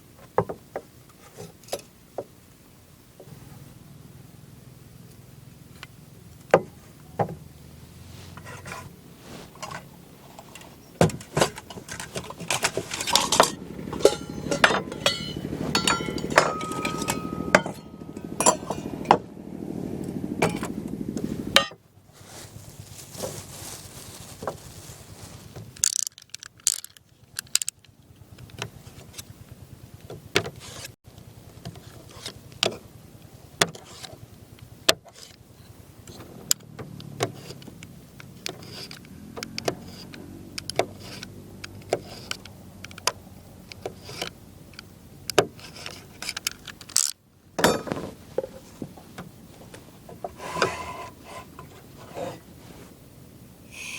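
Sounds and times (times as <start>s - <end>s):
equipment clicking and clinking: 9.6s - 19.3s, 25.7s - 29.2s, 38.4s - 48.6s
short ringing tone: 14.0s - 18.6s.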